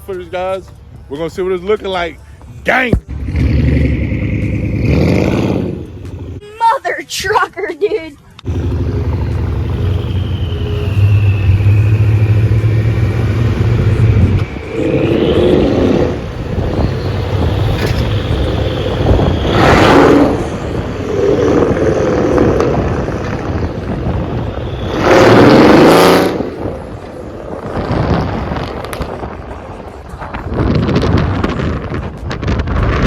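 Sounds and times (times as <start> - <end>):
car engine pulling hard: 3.1 - 6.4, 8.5 - 29.5.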